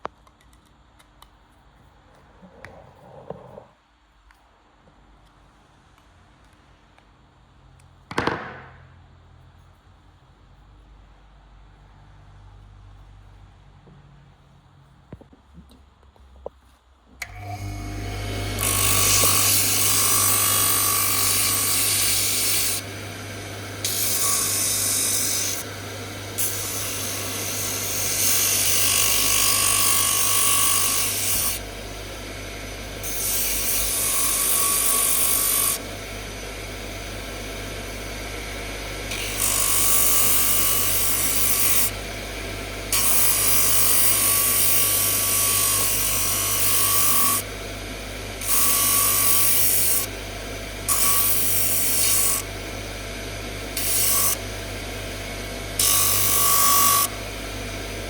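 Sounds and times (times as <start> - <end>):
power tool grinding workpiece: 17.2 - 36.6, 37.9 - 42.0, 42.9 - 47.4, 48.4 - 50.1, 50.8 - 52.5, 53.8 - 54.4, 55.8 - 57.4
motor hum: 17.2 - 58.0.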